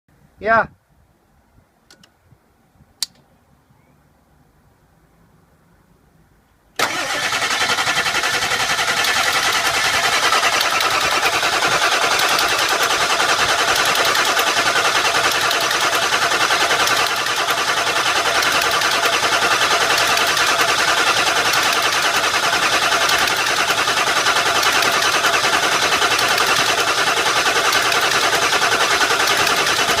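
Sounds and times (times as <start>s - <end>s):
engine cranking on starter motor: 6.8s - 30.0s.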